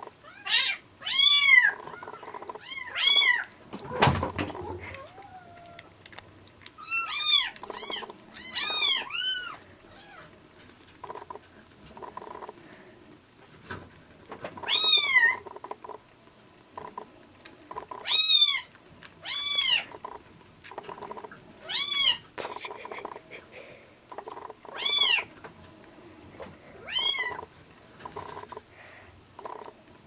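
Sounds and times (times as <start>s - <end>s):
kitten meowing: 6.8s - 10.3s, 14.6s - 15.5s, 24.3s - 25.3s, 26.8s - 27.5s.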